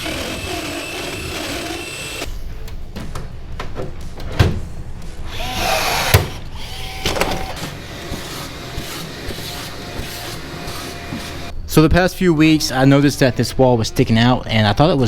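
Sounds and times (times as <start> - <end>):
vacuum cleaner running: 0.0 - 2.3, 5.4 - 11.5
knocks and clunks: 2.5 - 4.7.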